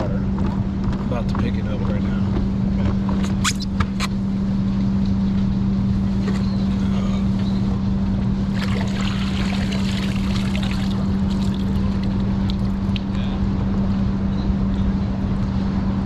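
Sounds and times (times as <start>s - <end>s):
boat motor humming: 0.0s - 16.0s
water splashing and dripping: 8.5s - 12.2s.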